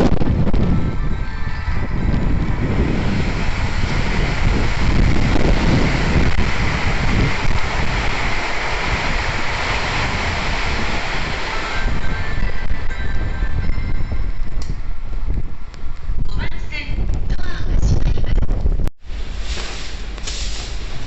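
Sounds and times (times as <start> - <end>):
heavy rain: 0.0 - 14.6
gusty wind buffeting microphone: 0.0 - 21.0.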